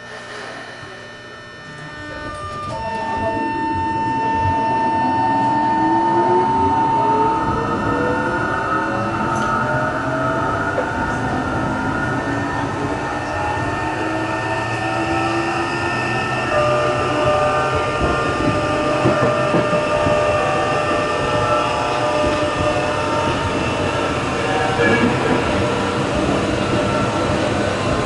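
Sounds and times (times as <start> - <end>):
subway motor whine: 0.0 - 28.0
wheel and rail noise: 6.5 - 28.0.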